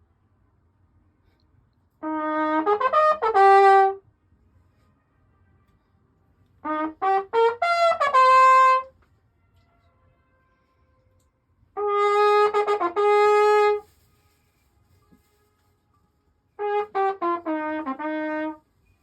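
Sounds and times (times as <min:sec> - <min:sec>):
trumpet echo: 0:02.0 - 0:04.0, 0:06.6 - 0:08.9, 0:11.8 - 0:13.9, 0:16.6 - 0:18.6
trumpet playing: 0:02.0 - 0:04.0, 0:06.6 - 0:08.9, 0:11.8 - 0:13.9, 0:16.6 - 0:18.6.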